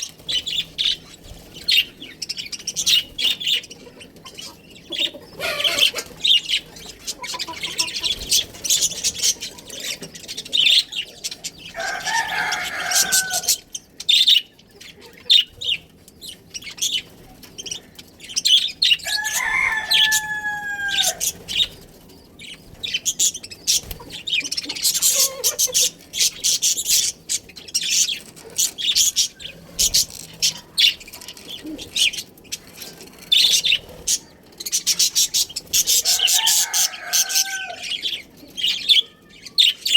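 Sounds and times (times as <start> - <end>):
budgerigars chirping: 0.0 - 21.8, 22.4 - 39.9
rooster crowing: 11.7 - 13.7, 19.0 - 21.3, 35.9 - 38.2.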